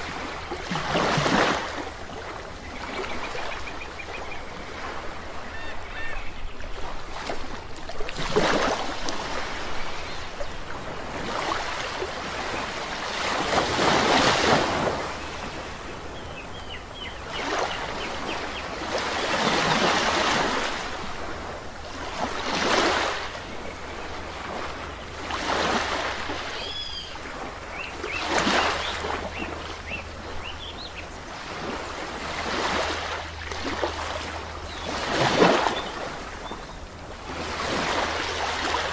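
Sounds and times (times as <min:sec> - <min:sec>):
sea waves breaking on a beach: 0:00.0 - 0:38.9
small birds chirping: 0:26.5 - 0:31.3.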